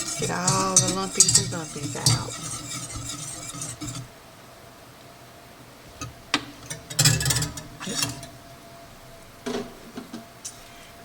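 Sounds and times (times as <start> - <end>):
kitchen utensils clattering: 0.0 - 4.1, 6.6 - 8.4, 9.5 - 10.3
stirring in a pan: 0.0 - 4.2, 6.0 - 8.6.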